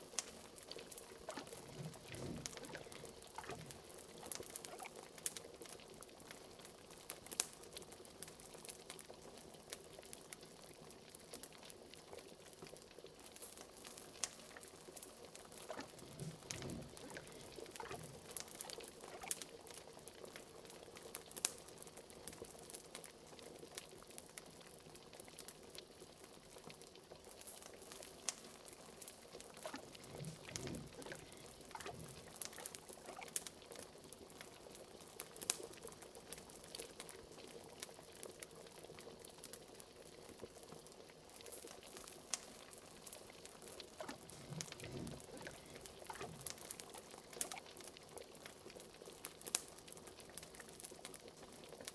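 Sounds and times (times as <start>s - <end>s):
burning wood crackling: 0.0s - 5.4s, 13.8s - 19.8s, 27.4s - 33.5s, 42.0s - 51.2s
pot of liquid boiling: 0.0s - 51.9s.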